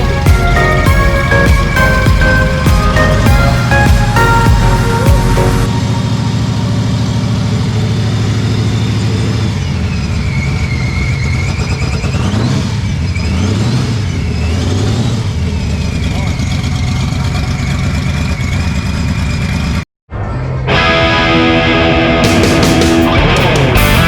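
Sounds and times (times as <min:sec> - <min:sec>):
high whine: 0:00.0 - 0:10.4
car engine revving: 0:00.0 - 0:19.8.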